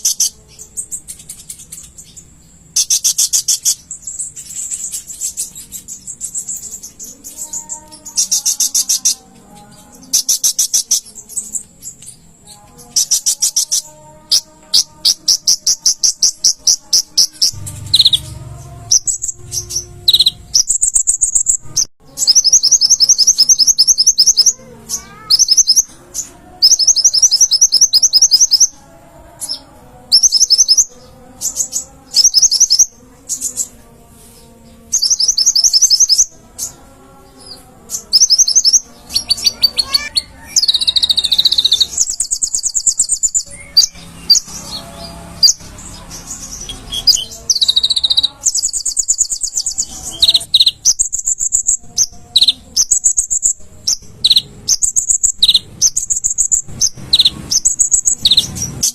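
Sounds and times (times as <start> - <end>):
bird trilling rapidly: 12.9 - 25.9, 38.0 - 44.6, 45.3 - 58.9.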